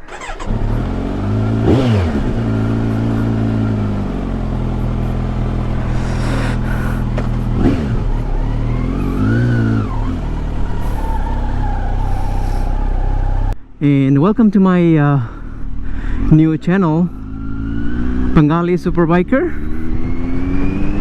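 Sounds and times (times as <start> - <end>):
motorcycle engine revving: 0.0 - 13.6, 16.9 - 21.0
steady low rumble: 0.4 - 11.2.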